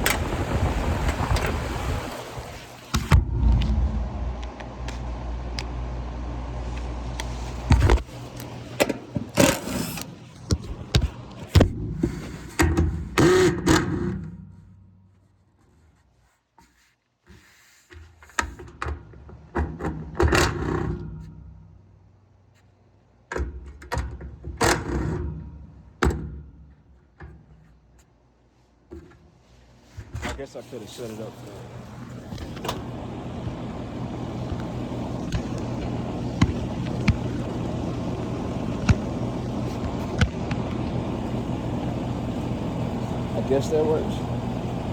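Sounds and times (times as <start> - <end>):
low steady rumble: 0.0 - 8.4, 31.4 - 44.9.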